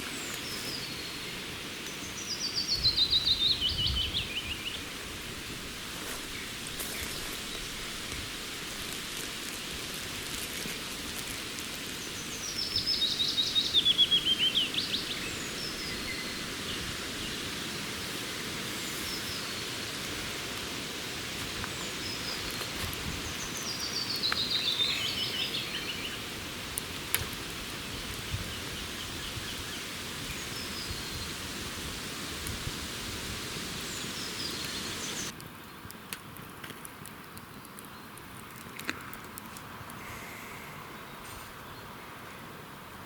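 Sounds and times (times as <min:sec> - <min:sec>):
steady hiss: 0:00.0 - 0:43.0
bird chirps: 0:12.1 - 0:16.4
songbird trilling: 0:12.1 - 0:16.8.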